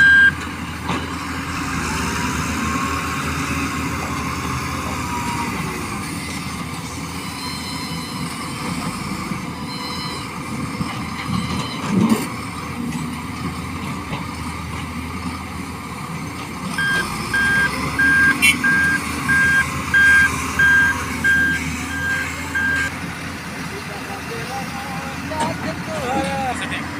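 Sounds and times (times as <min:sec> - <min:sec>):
reversing alarm beeping: 0:00.0 - 0:00.4, 0:07.2 - 0:08.4, 0:09.6 - 0:10.3, 0:16.8 - 0:22.9
truck engine running: 0:00.0 - 0:26.9.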